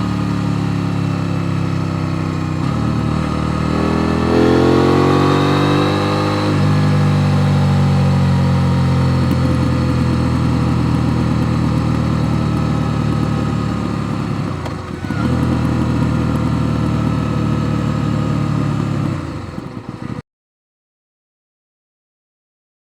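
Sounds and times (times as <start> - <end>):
motorcycle engine idling: 0.0 - 20.2.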